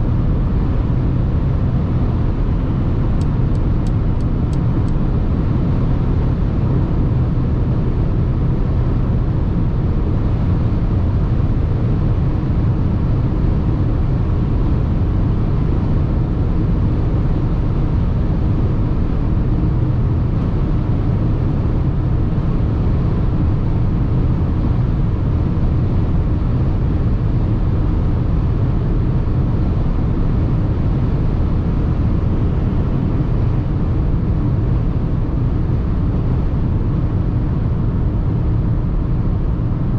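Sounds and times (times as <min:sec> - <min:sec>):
car engine running: 0:00.0 - 0:07.6
road and wind noise in car: 0:00.0 - 0:39.9.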